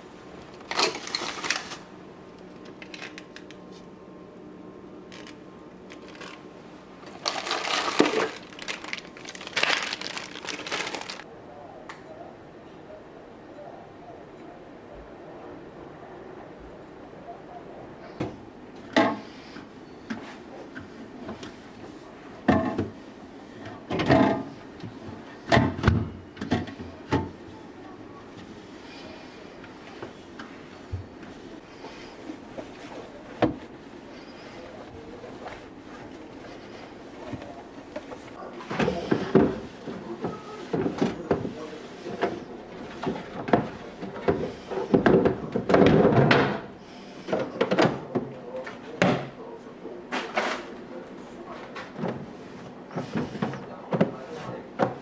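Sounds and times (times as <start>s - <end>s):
containers and drawers clattering: 0.6s - 1.9s, 5.1s - 11.2s, 23.6s - 27.4s
rustling: 7.0s - 11.3s.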